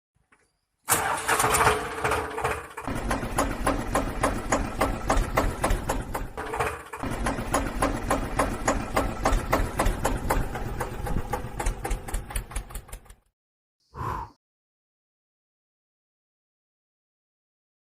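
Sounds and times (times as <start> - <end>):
engine knocking chug: 0.9 - 13.3.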